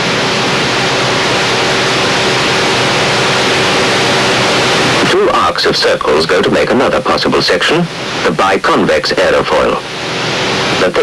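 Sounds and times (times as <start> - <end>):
loud rushing noise: 0.0 - 5.4, 9.6 - 11.0.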